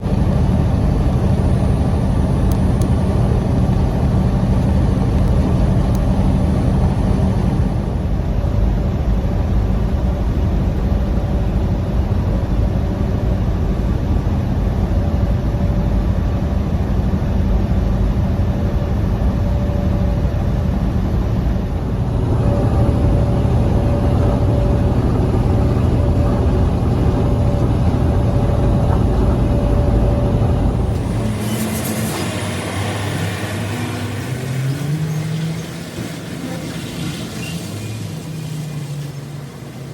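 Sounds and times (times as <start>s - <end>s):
faint steady hum: 0.0s - 31.4s
vehicle engine running: 0.0s - 39.9s.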